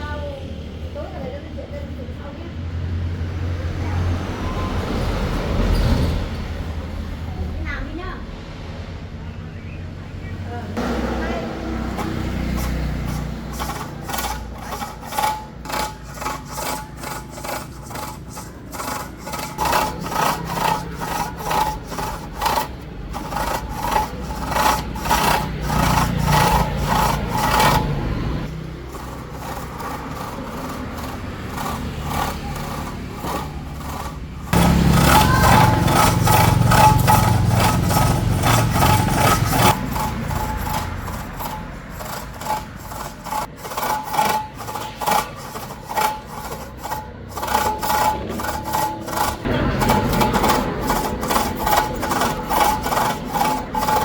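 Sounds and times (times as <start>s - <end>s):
hand tool rasping scrapes: 10.8s - 54.0s.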